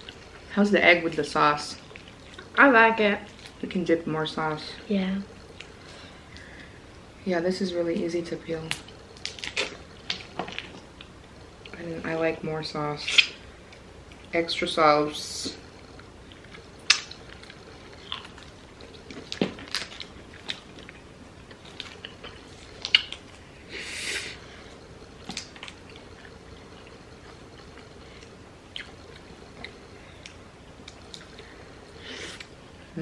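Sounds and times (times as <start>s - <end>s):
chewing: 0.0s - 0.5s, 1.8s - 2.6s, 8.8s - 11.8s, 15.8s - 23.5s, 24.6s - 32.6s
crackling rustle: 0.0s - 3.8s, 7.9s - 14.7s, 15.5s - 33.0s.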